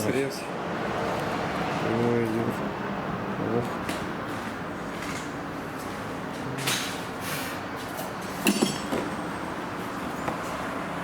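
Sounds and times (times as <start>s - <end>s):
sharp clink: 8.4s - 9.0s.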